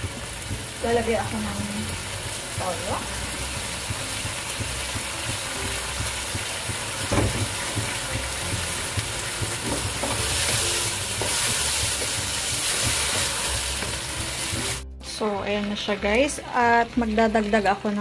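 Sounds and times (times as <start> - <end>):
meat sizzling in a wok: 0.0 - 14.9
wooden spatula scraping and knocking: 9.4 - 14.8.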